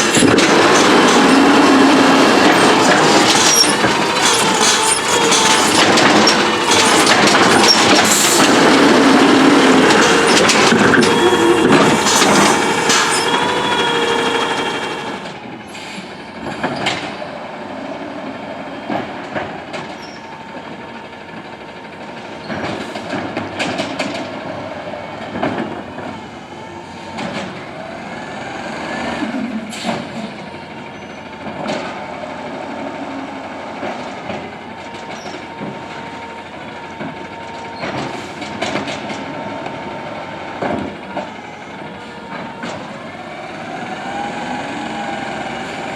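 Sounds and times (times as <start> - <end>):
metallic clanks and knocks: 0.0 - 15.1
garbage truck running: 0.0 - 45.9
garbage truck whine: 0.0 - 45.9.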